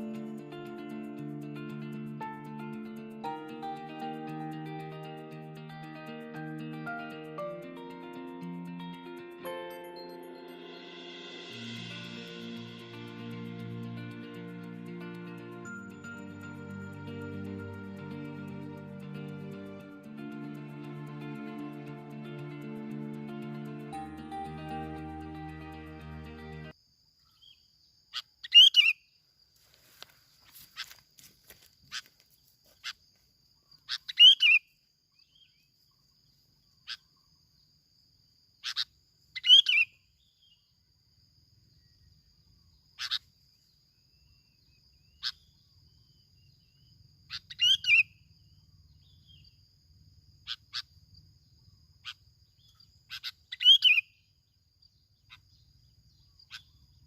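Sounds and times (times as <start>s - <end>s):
faint high hiss: 0.0s - 26.7s.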